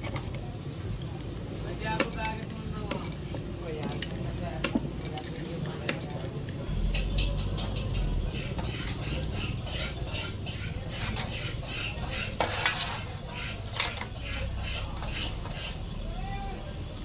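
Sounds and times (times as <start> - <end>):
metal parts clinking and scraping: 2.1 - 4.2, 5.0 - 15.8.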